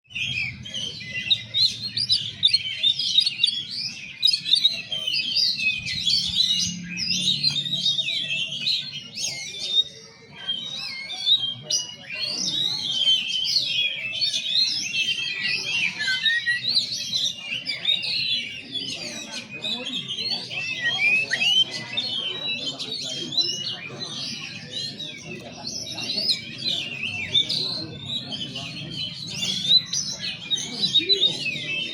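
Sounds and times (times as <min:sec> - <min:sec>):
bird singing whistled phrases: 0:00.1 - 0:23.7.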